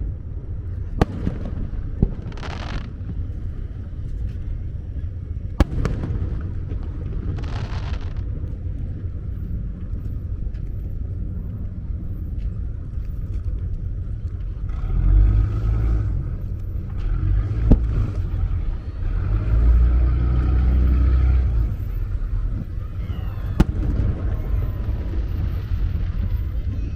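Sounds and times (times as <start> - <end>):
rumble of firework booms: 0.7 - 4.2, 5.4 - 9.8, 21.6 - 26.9
sharp firework bang: 1.0 - 2.9, 5.6 - 8.2, 23.5 - 26.5.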